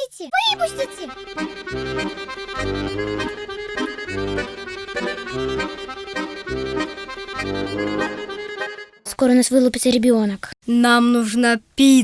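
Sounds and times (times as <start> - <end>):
accordion music: 0.4 - 9.4.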